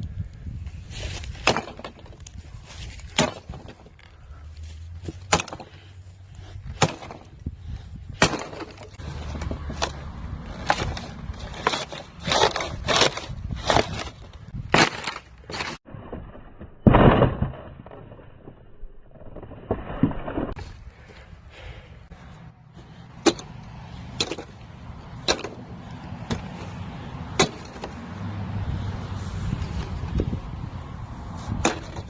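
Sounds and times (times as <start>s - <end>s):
maul striking metal fridge: 5.1s - 5.7s, 6.8s - 7.3s, 8.2s - 10.0s
cracking and breaking: 8.2s - 20.7s.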